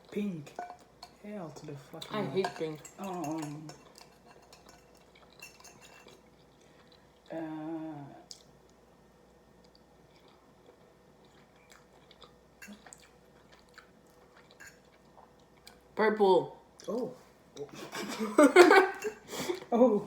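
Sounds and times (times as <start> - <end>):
chewing food: 3.3 - 7.4, 9.6 - 15.9.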